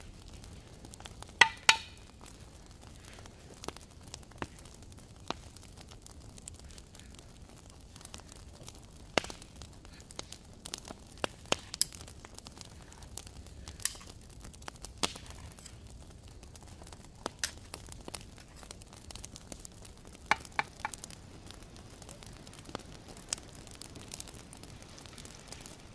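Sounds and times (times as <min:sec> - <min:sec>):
wood fire popping: 0:00.0 - 0:25.9.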